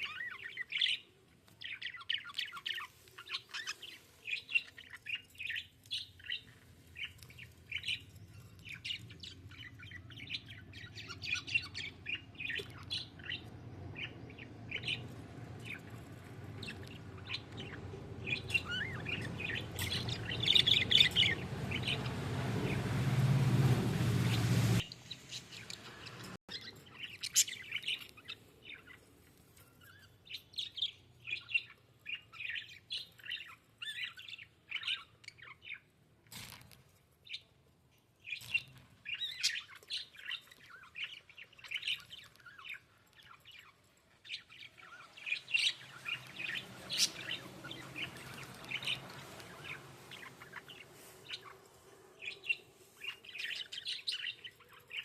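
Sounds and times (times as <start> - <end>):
budgerigars chirping: 0.0 - 15.9, 16.6 - 22.8, 44.3 - 51.5.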